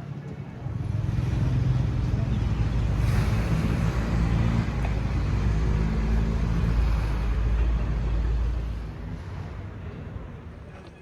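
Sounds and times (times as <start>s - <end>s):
vehicle engine running: 0.6s - 9.0s.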